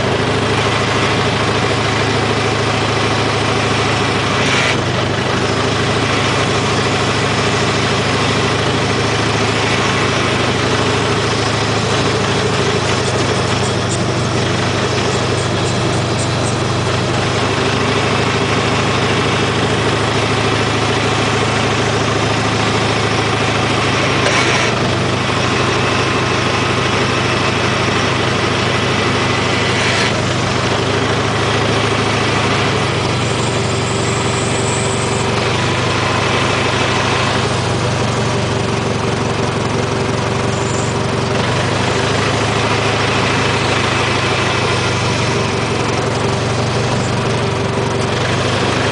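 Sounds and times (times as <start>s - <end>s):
tractor engine running: 0.0s - 48.9s.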